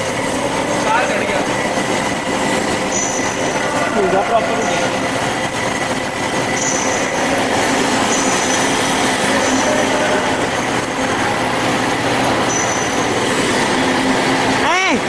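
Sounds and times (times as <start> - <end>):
band saw running: 0.0 - 15.0
short high whines: 0.0 - 15.0.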